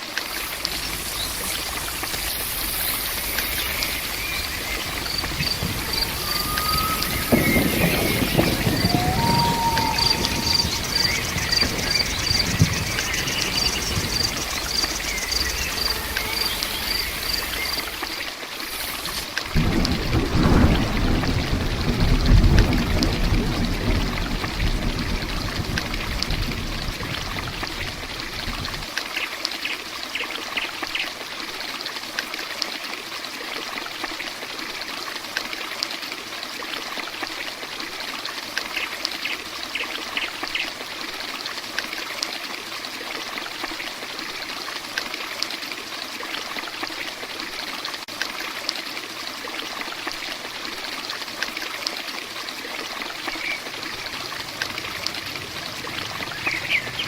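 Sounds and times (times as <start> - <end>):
heavy rain falling: 0.0 - 29.0, 50.5 - 57.0
low rumble: 0.4 - 18.1, 53.6 - 57.0.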